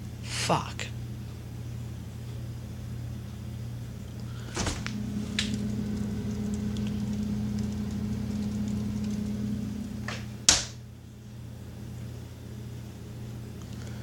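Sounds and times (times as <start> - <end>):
fridge humming: 3.9 - 11.5
items knocking inside fridge: 4.4 - 5.0.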